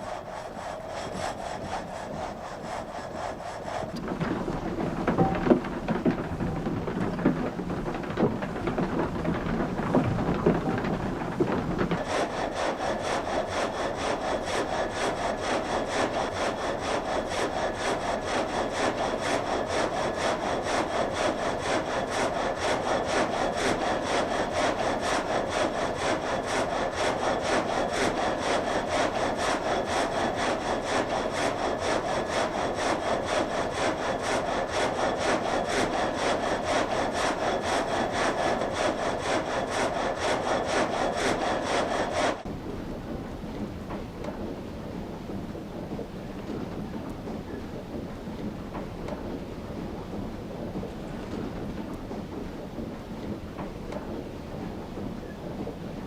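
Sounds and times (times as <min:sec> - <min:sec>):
frame saw cutting log: 0:00.0 - 0:42.5.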